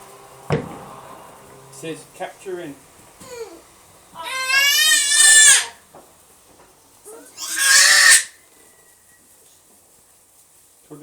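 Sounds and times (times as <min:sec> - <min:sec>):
high-pitched wavering squeals: 0:00.0 - 0:03.8.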